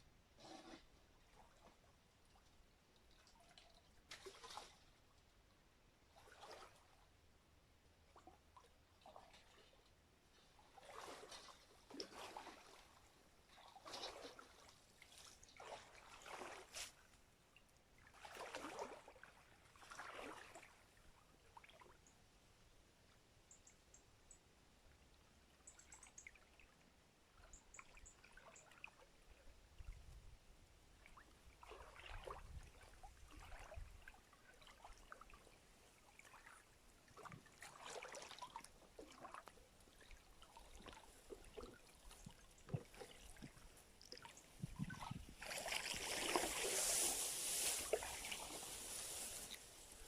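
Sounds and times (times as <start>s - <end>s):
stream water trickling: 8.1s - 22.2s, 23.5s - 30.2s, 30.9s - 50.0s.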